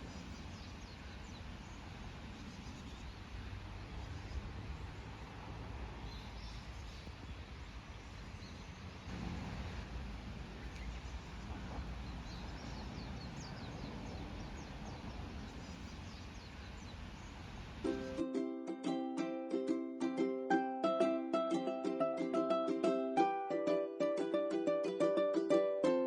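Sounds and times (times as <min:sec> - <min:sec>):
birds chirping: 0:00.0 - 0:05.4, 0:06.0 - 0:17.8
stream rushing: 0:09.0 - 0:15.5.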